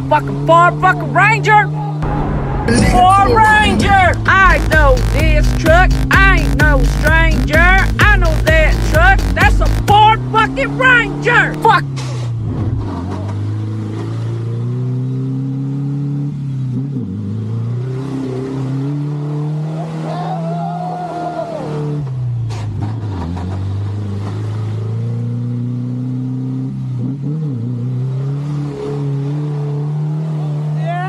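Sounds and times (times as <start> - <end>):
truck engine revving: 0.0 - 31.0
high whine: 2.0 - 10.0.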